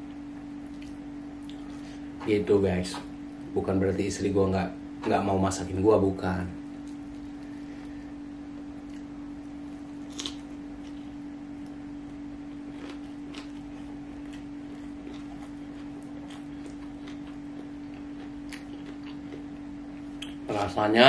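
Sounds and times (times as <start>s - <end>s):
low hum: 0.0s - 21.0s
chewing: 12.6s - 19.6s.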